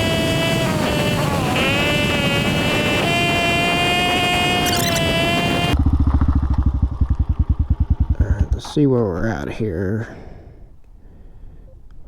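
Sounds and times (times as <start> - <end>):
wind rush: 0.0 - 5.8
motorcycle engine: 0.0 - 9.2
motorcycle engine idling: 0.0 - 9.4.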